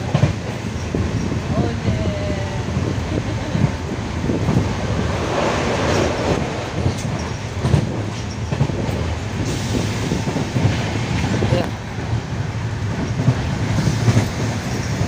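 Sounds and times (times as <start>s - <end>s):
train rumbling on rails: 0.0s - 15.0s
sharp rail clicks: 4.4s - 15.0s.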